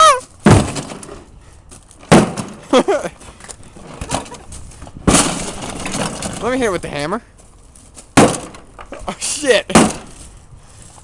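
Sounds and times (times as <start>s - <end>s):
person yelling: 0.0s - 0.3s
heavy blows on a refrigerator: 9.7s - 10.2s.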